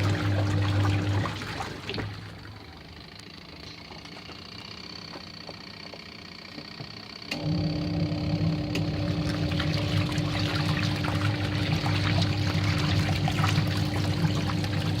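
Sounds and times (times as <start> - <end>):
washing machine motor hum: 0.0 - 15.0
water splashing in drum: 9.2 - 15.0.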